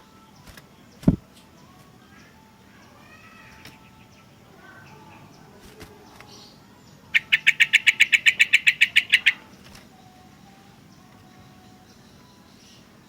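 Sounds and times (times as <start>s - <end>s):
bulbul rapid chatter: 7.1s - 9.5s.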